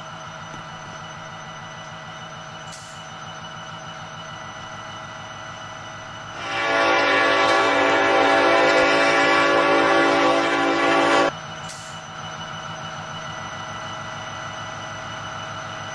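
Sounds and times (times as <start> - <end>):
train running: 0.0 - 15.9
train horn chord: 6.4 - 11.3.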